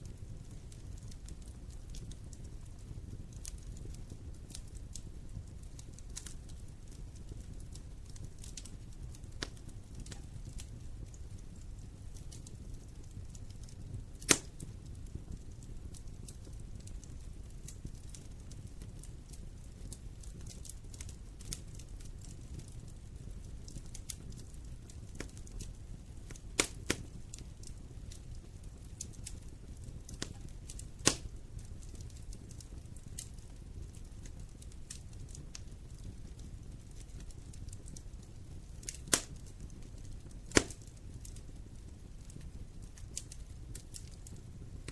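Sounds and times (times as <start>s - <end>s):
fire rumbling in fireplace: 0.0s - 44.9s
wood fire crackles: 0.0s - 44.9s.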